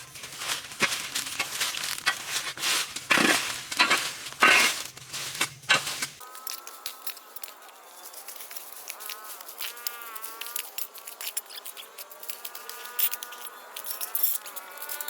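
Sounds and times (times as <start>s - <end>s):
insect buzzing: 6.2s - 15.0s.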